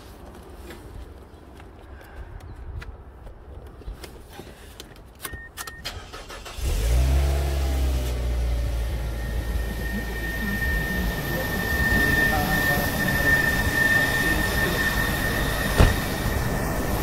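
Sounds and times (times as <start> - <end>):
car engine starting and idling: 5.6 - 11.6.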